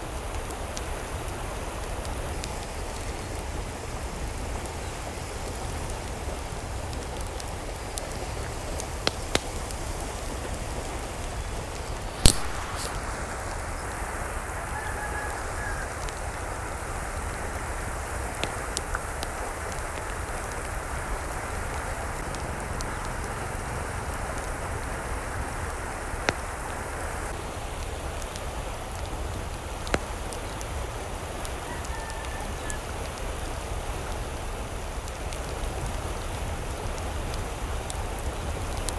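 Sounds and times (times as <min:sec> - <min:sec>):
steady rain: 0:00.0 - 0:38.9
sharp taps of raindrops: 0:01.9 - 0:13.2, 0:18.3 - 0:20.8, 0:27.9 - 0:30.7.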